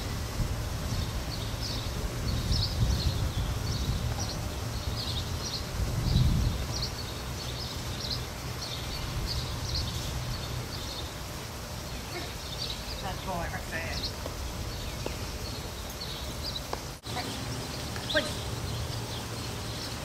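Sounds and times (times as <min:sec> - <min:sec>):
bird chirping: 0:11.8 - 0:20.0.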